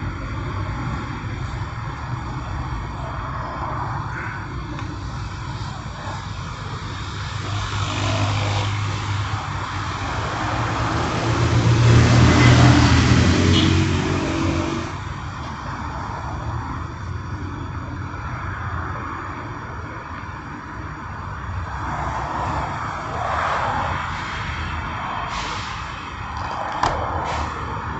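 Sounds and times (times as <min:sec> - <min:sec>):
motor vehicle passing by: 0:07.5 - 0:15.0.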